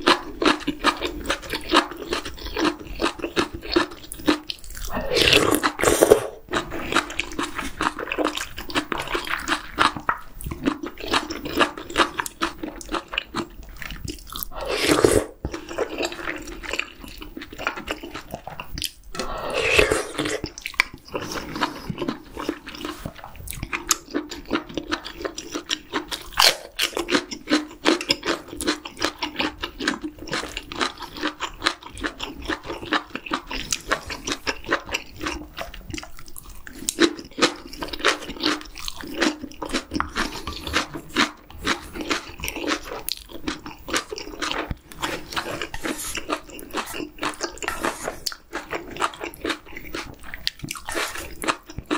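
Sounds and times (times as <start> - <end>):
wet chewing: 0.0 - 51.9
slurping hot broth: 4.8 - 7.9, 14.4 - 16.4, 19.1 - 20.6, 44.9 - 48.4.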